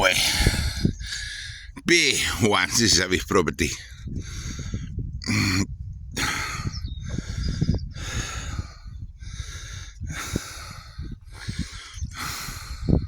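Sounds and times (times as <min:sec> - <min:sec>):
heavy breathing: 0:00.0 - 0:01.7, 0:06.2 - 0:13.0.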